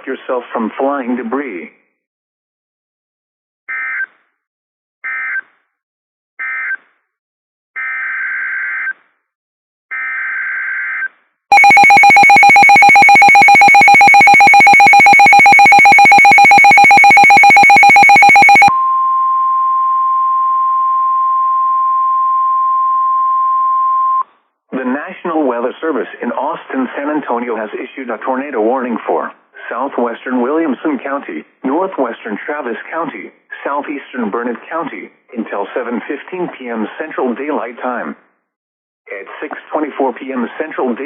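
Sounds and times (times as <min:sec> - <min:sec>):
buzzy pulsing alarm tone: 0:11.5 - 0:18.7
screeching digital data bursts: 0:11.5 - 0:18.7
steady single-pitch alarm tone: 0:11.5 - 0:19.2.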